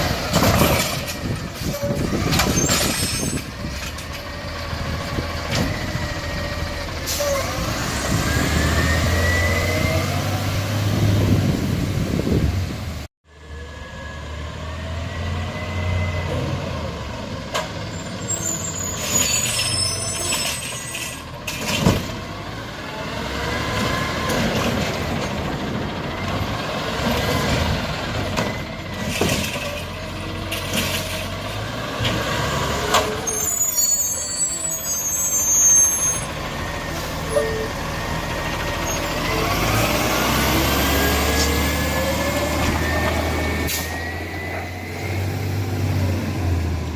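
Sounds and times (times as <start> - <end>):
air brakes squealing: 1.6 - 3.5, 7.0 - 7.6, 17.9 - 21.2, 33.2 - 37.8, 38.7 - 39.4, 42.7 - 45.2
hydraulic whines: 32.8 - 45.3.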